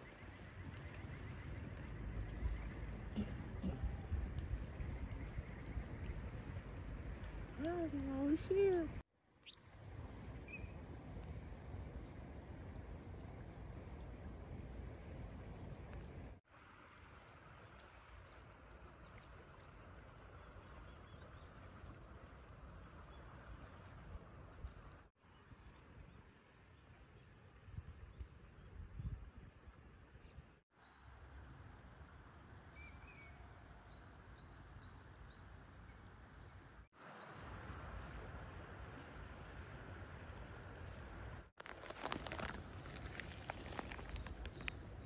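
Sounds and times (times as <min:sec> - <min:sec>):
small ticks: 0:41.6 - 0:45.0.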